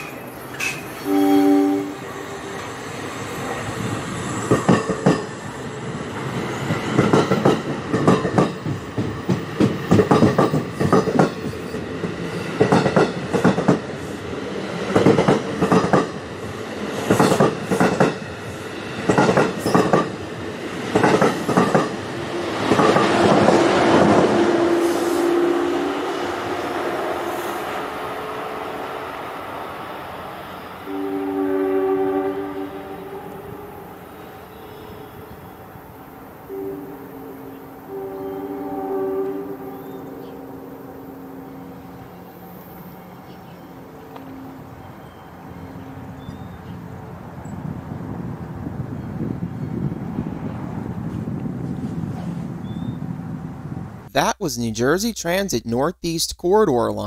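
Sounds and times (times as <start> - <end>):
train rumble: 0.0 - 30.1, 45.8 - 54.2
train horn: 1.0 - 2.8, 23.2 - 29.1, 30.8 - 35.4, 36.5 - 46.8
train wheels clacking over rail joints: 6.7 - 11.6, 12.6 - 13.9, 14.9 - 16.2, 17.0 - 18.2, 19.0 - 20.2, 20.9 - 24.4.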